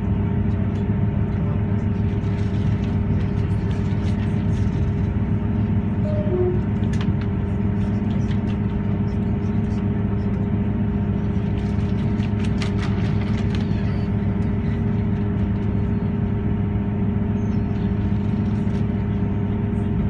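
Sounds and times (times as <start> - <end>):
train engine drone from inside: 0.0 - 20.0.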